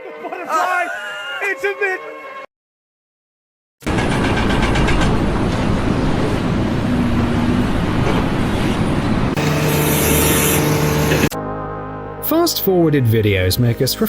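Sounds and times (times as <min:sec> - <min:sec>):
heavy engine rumbling: 0:03.9 - 0:11.4.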